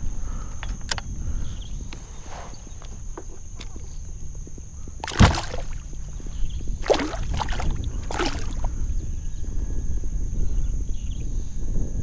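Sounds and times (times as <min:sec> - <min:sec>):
wind rumble on microphone: 0:00.0 - 0:12.0
water splashing against kayak: 0:02.2 - 0:08.8.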